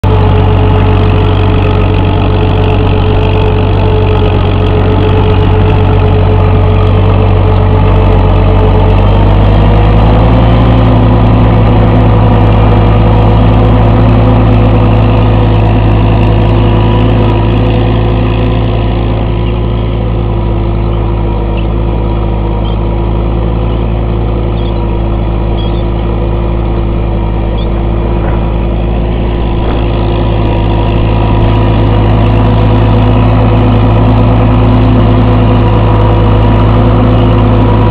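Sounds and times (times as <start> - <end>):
tractor engine running: 0.0 - 37.9.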